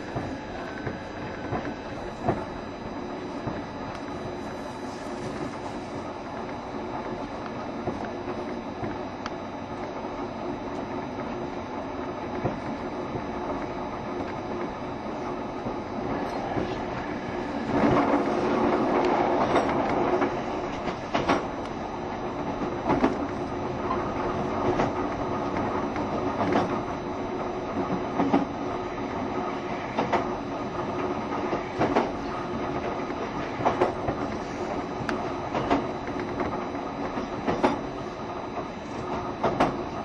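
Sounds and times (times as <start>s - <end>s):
train wheels rumbling on rail: 0.0s - 40.0s
rail-joint clacks: 16.1s - 21.8s, 30.9s - 38.0s, 38.6s - 39.8s.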